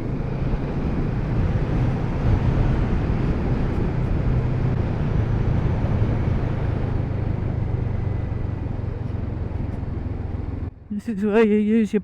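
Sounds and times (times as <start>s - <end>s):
wind rush on microphone: 0.0s - 10.6s
motorcycle engine running: 0.0s - 11.0s.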